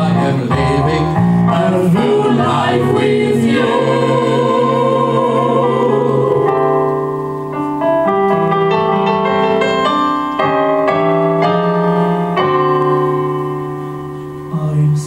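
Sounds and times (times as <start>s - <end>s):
piano playing: 0.0s - 15.0s.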